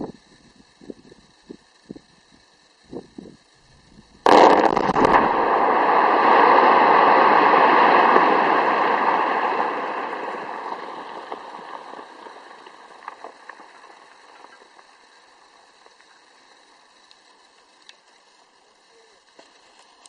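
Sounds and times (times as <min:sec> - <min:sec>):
rock mass collapsing: 0:03.0 - 0:14.9
faint sharp cracks: 0:04.2 - 0:18.5.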